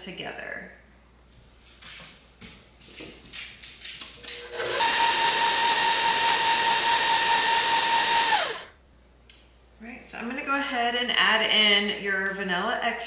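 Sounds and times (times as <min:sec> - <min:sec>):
stand mixer motor whining: 0:04.4 - 0:08.7.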